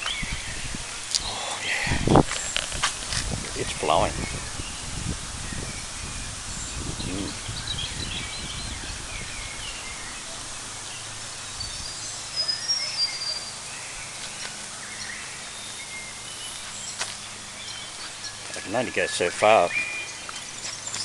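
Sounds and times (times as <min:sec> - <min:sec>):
wind buffeting microphone: 0:00.0 - 0:12.2
birds calling: 0:00.0 - 0:21.0
creek rushing: 0:00.0 - 0:21.0.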